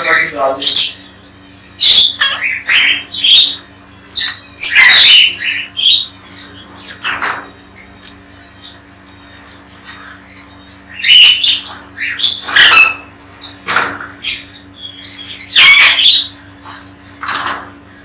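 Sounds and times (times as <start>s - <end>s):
parrots squawking: 0.0s - 18.0s
parrot chirps: 10.2s - 13.6s, 14.2s - 16.4s.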